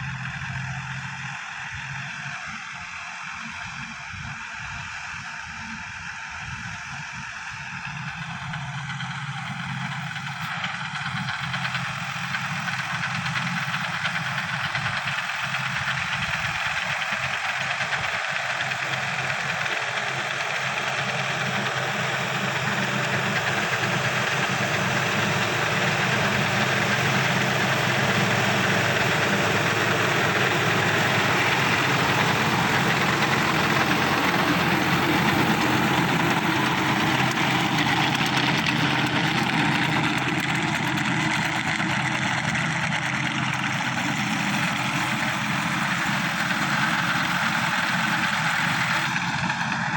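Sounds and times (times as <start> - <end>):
tractor diesel engine clattering: 0.0 - 49.9.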